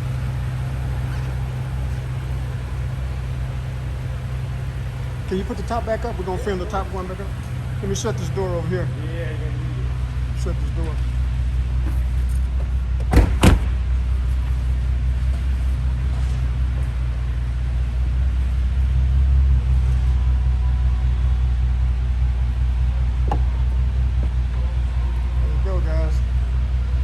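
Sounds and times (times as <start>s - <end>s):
car door shutting: 0.0s - 8.6s, 13.0s - 13.9s
faint steady whine: 0.0s - 11.3s
car engine idling: 0.0s - 27.0s.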